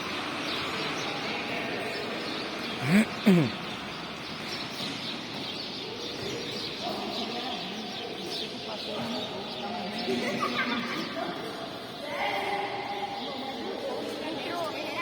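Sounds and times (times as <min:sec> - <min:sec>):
birds chirping: 0:01.8 - 0:10.0
low voice-like sounds: 0:02.8 - 0:03.6.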